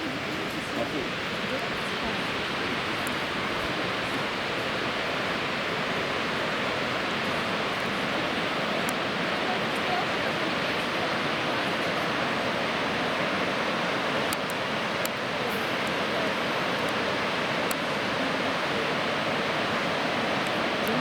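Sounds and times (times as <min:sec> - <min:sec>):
waterfall rushing water: 0:00.0 - 0:21.0.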